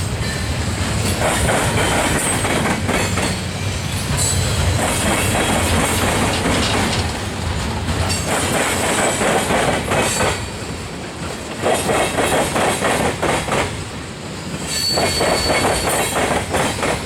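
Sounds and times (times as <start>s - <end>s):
wheels clacking over rail joints: 0.2s - 13.8s.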